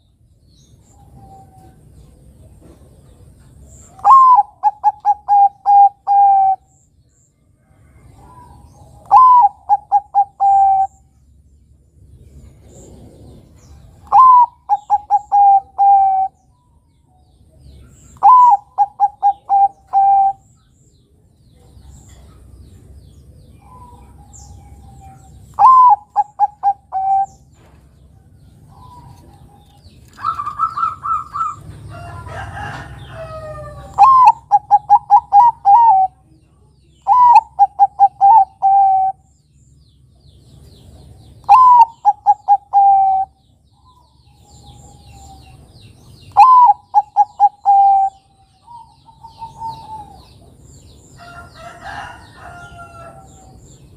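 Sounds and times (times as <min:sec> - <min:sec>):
dove cooing: 0:03.9 - 0:06.7, 0:08.2 - 0:11.1, 0:12.6 - 0:16.4, 0:18.0 - 0:20.5, 0:23.6 - 0:27.4, 0:28.6 - 0:36.3, 0:37.0 - 0:39.2, 0:41.4 - 0:45.6, 0:46.3 - 0:50.5.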